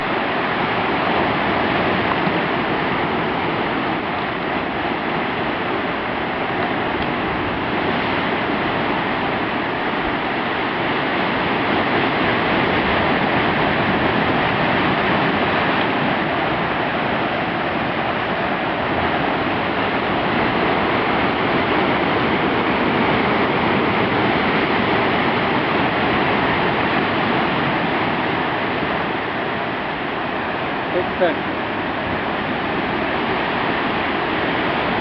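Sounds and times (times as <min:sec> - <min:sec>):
sea surf: 0:00.0 - 0:35.0
wind: 0:00.0 - 0:35.0.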